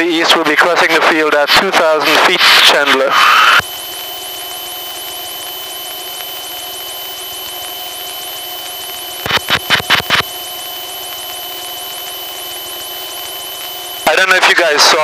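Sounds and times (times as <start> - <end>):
aircraft engine drone: 1.1 - 15.0
radio mic clicks: 9.2 - 10.3.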